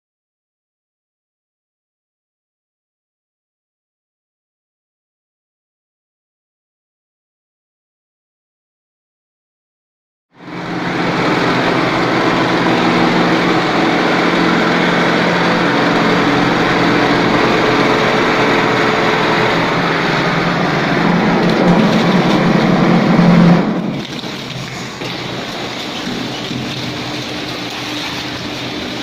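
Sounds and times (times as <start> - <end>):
plastering machine humming: 10.4 - 29.0.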